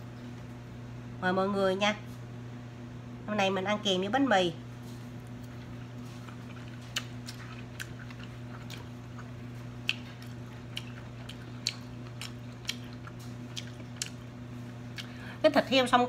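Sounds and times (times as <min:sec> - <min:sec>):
steady low hum: 0:00.0 - 0:16.0
person chewing: 0:05.2 - 0:15.3.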